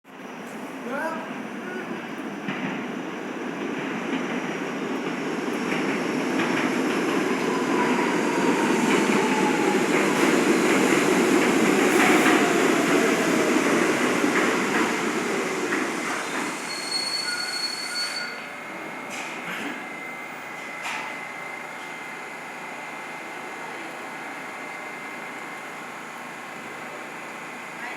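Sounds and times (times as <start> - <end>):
subway train rumble and wheel noise: 0.1 - 27.9
high brake squeal: 16.2 - 18.7.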